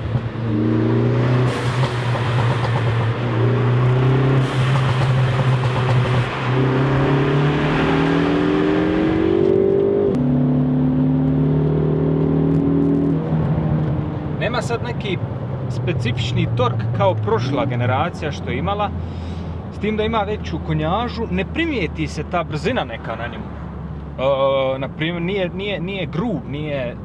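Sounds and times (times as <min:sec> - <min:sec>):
car engine accelerating hard: 0:00.0 - 0:14.2.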